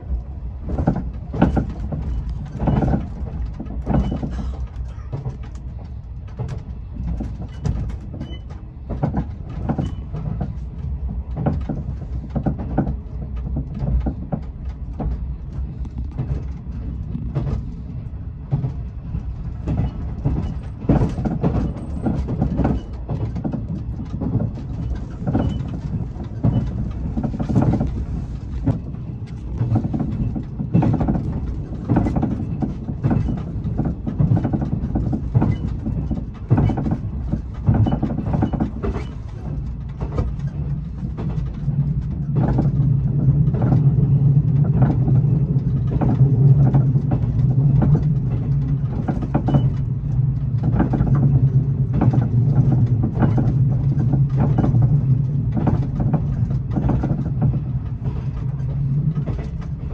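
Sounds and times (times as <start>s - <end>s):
train wheels rumbling: 0.0s - 59.9s
clicks knocks and rattles: 18.5s - 59.9s.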